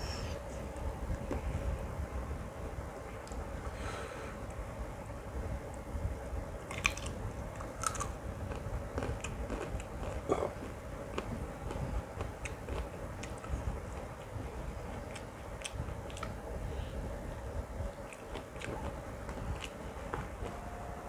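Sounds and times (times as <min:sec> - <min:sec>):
chewing with wet smacks: 0:06.7 - 0:16.4, 0:17.9 - 0:20.6.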